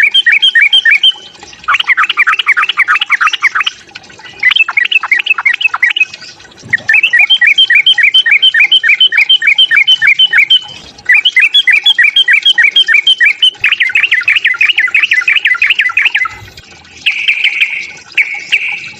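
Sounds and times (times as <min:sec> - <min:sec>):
bird chattering call: 0:06.8 - 0:16.4, 0:17.1 - 0:18.9.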